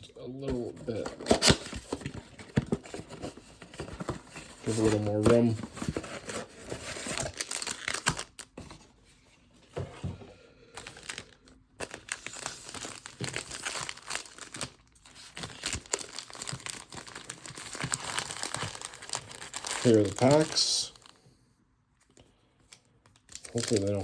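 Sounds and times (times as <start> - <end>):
plastic wrap tearing and crinkling: 6.6 - 8.6, 10.8 - 21.1, 23.2 - 24.0.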